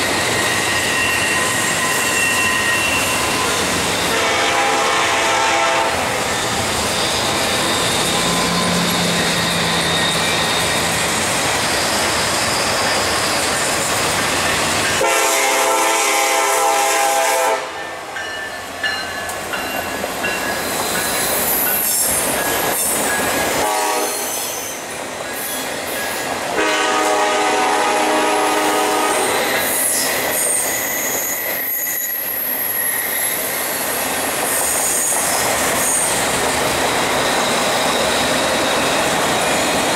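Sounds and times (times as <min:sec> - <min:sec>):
high wheel squeal: 0:00.0 - 0:04.3, 0:06.0 - 0:15.0, 0:19.1 - 0:26.3, 0:29.1 - 0:39.9
locomotive horn blasts: 0:04.0 - 0:06.1, 0:15.0 - 0:17.9, 0:23.6 - 0:24.3, 0:26.6 - 0:29.4
train wheels clattering on rails: 0:06.0 - 0:15.7, 0:18.1 - 0:39.9.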